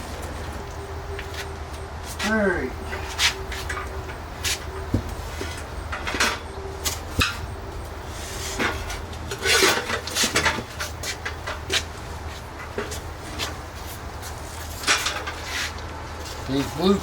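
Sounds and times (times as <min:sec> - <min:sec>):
steady low hum: 0:00.0 - 0:17.0
wood knocking against wood: 0:04.9 - 0:05.2.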